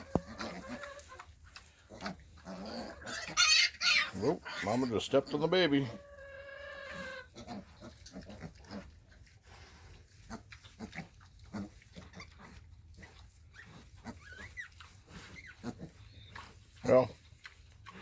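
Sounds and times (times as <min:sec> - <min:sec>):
pigs grunting softly: 0:00.0 - 0:18.0
piglet squealing: 0:02.0 - 0:08.2, 0:13.6 - 0:16.4.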